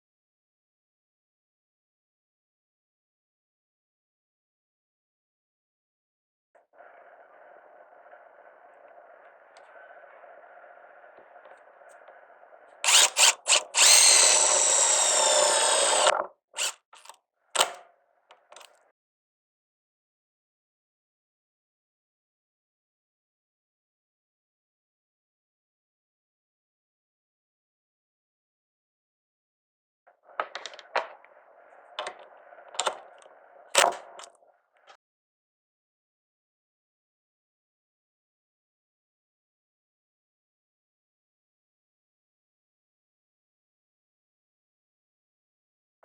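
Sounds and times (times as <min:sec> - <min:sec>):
power driver driving screw: 0:12.8 - 0:17.8, 0:33.8 - 0:34.2.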